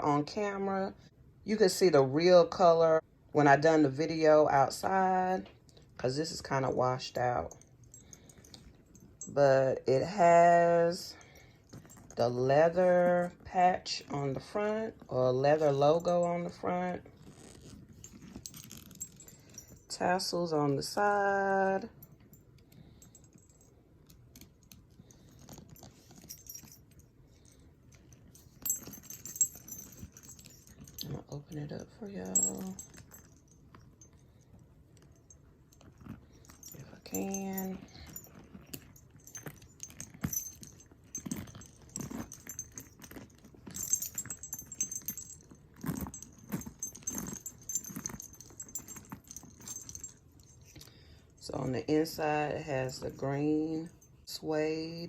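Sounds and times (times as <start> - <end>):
handbag hardware clinking: 6.3 - 9.4, 11.1 - 20.3, 21.9 - 51.4
leather rustling and knocking: 7.5 - 9.3, 11.4 - 12.2, 16.0 - 19.9, 22.0 - 50.9.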